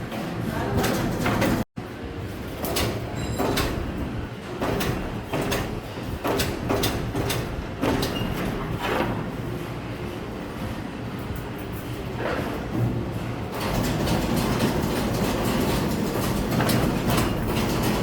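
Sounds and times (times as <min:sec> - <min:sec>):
sharp metallic knocks and clicks: 0:04.6 - 0:09.2.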